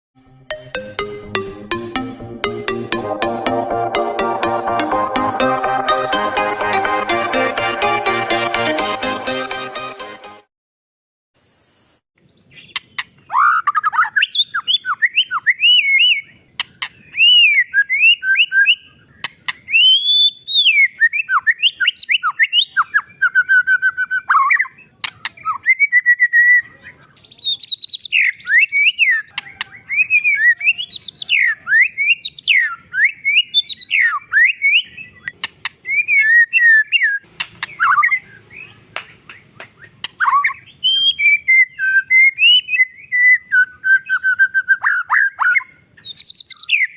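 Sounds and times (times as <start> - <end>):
shama singing varied whistles: 11.4 - 12.0, 13.3 - 26.7, 27.4 - 38.7, 39.3 - 46.9.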